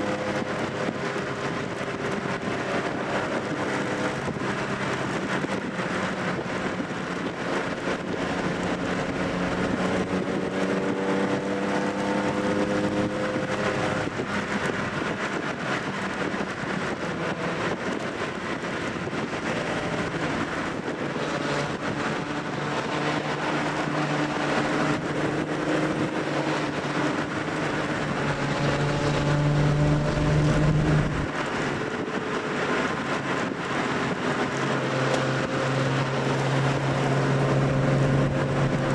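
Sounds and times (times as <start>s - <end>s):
road and wind noise: 0.0s - 38.9s
car engine revving: 7.5s - 31.5s, 33.8s - 38.9s.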